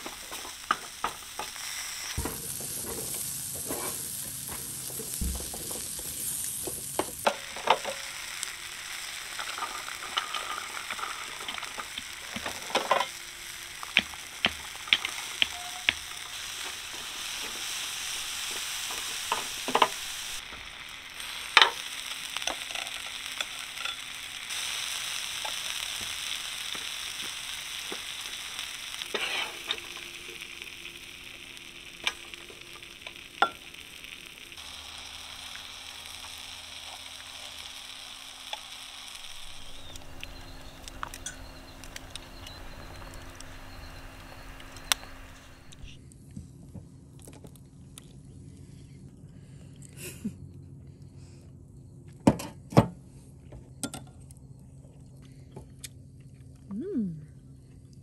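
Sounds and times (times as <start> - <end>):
food sizzling in a pan: 0.0 - 46.0
utensil scraping a pan: 29.1 - 29.9.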